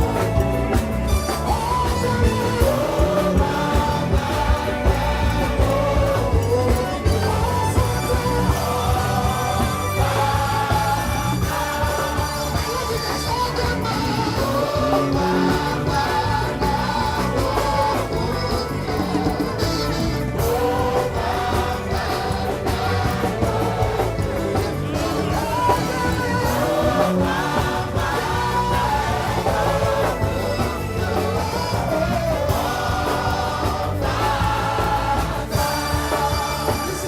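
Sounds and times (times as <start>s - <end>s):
band with steady beat: 0.0s - 37.0s
choir singing gospel music: 0.0s - 37.0s.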